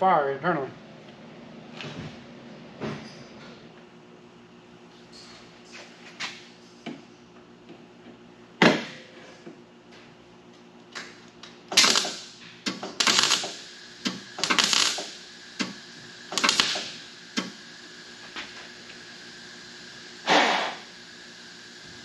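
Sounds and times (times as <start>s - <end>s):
welder crackling bursts: 11.7s - 18.3s.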